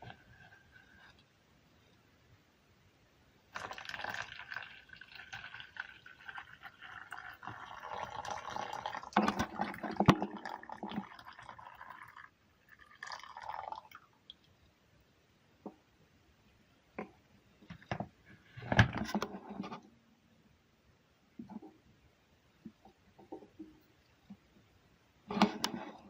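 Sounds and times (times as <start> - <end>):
liquid gurgling and splashing: 3.6 - 12.2.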